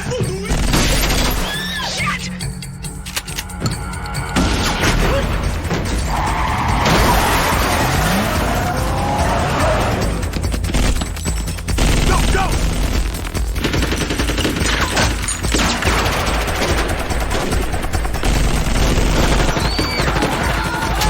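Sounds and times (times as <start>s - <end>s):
automatic gunfire: 0.4s - 1.8s, 6.9s - 21.0s.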